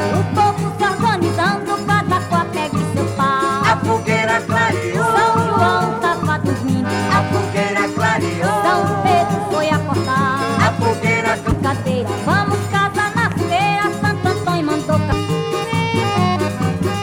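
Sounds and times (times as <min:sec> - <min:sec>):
accordion melody: 0:00.0 - 0:17.0
bass drum beat: 0:08.4 - 0:16.1.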